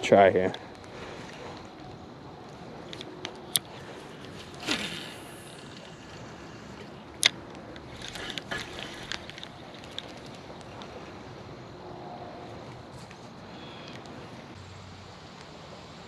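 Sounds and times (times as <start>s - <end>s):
wind: 0.0s - 16.0s
reel clicking as cranked: 2.9s - 10.8s
fishing line whoosh: 3.7s - 6.9s.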